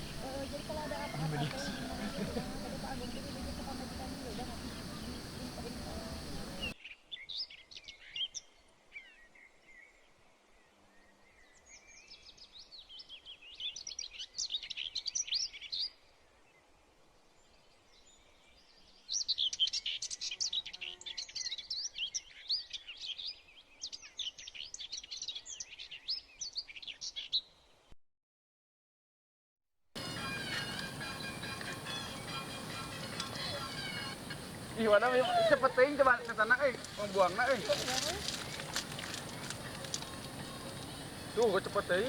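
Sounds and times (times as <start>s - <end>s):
small birds twittering: 0.0s - 8.5s, 30.0s - 42.0s.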